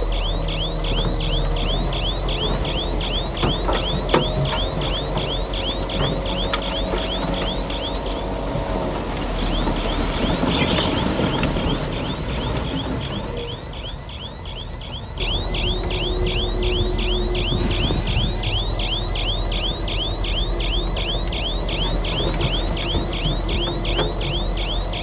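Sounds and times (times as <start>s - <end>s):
low engine rumble: 0.0s - 25.0s
high squeal: 9.4s - 25.0s.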